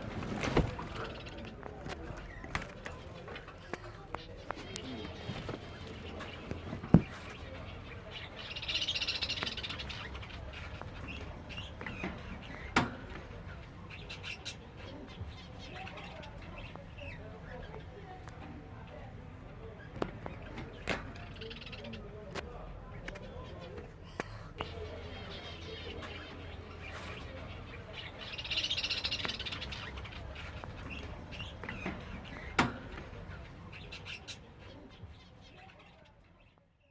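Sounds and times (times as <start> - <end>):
finches chirping: 0.0 - 23.8, 24.6 - 36.9
buzzy hissing bird song: 7.6 - 12.7.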